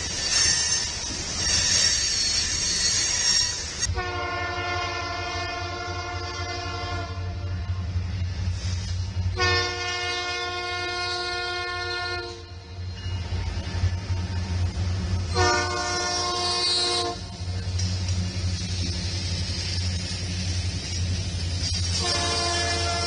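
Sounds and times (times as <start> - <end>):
train rumbling past: 0.0 - 23.0
locomotive horn blasts: 3.9 - 7.6, 9.4 - 12.6, 15.3 - 17.3, 21.9 - 23.0.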